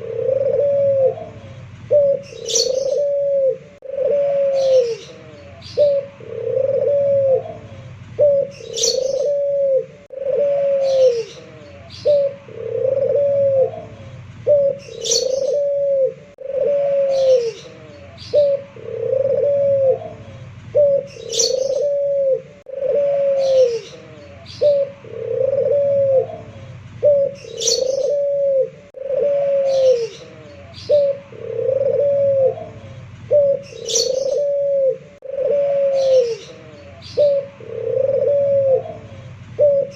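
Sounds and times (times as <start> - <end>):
dove cooing: 0.0 - 39.9
high bird chirp: 2.2 - 3.1, 8.5 - 9.4, 14.8 - 15.6, 21.1 - 21.9, 27.4 - 28.2, 33.6 - 34.5.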